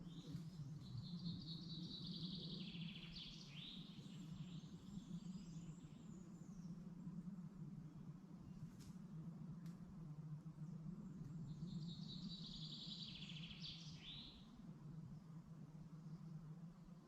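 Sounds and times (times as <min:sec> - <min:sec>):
faint low rumble: 0:00.0 - 0:17.0.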